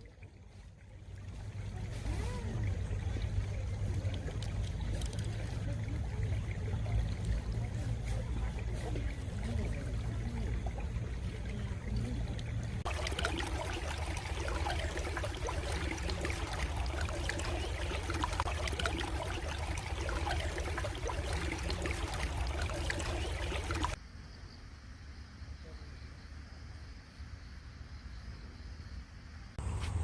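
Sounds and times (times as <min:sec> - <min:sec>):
stream water trickling: 0:00.0 - 0:24.0.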